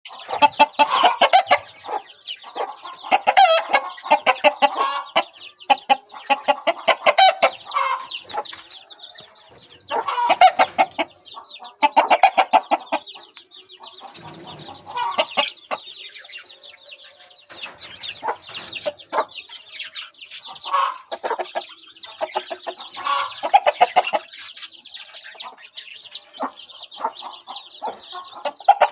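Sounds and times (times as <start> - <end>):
chickens clucking: 0.1 - 28.9
high-pitched peeping calls: 0.1 - 28.9.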